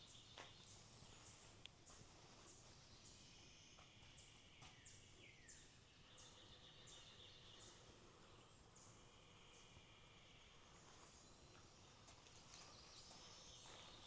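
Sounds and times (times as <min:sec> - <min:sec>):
faint insect hum: 0:00.0 - 0:14.0.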